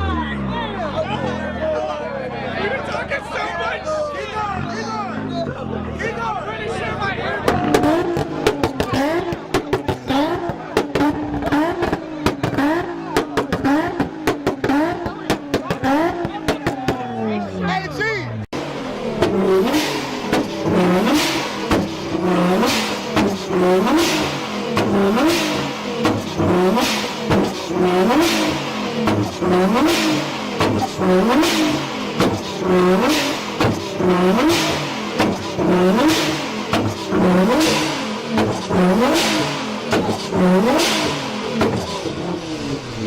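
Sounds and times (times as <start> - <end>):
car engine revving: 0.0 - 43.0
sharp exhaust pops: 7.4 - 17.0, 19.1 - 43.0.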